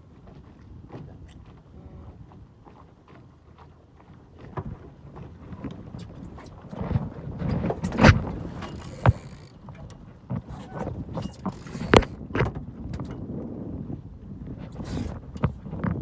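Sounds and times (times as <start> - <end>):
knocks aboard sailboat: 4.5 - 16.0.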